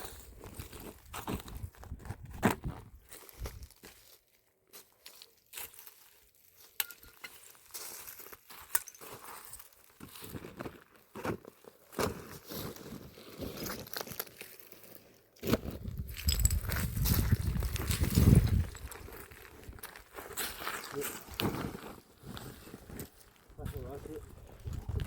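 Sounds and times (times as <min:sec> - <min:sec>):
rustling and crinkling: 0:00.0 - 0:25.0.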